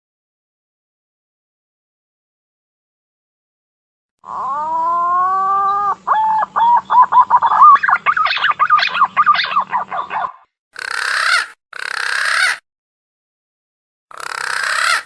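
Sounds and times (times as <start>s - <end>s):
warbling whistled lure call: 4.3s - 12.6s.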